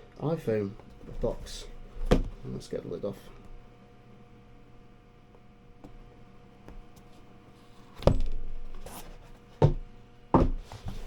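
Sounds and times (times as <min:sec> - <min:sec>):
short knock: 0:02.0 - 0:02.4.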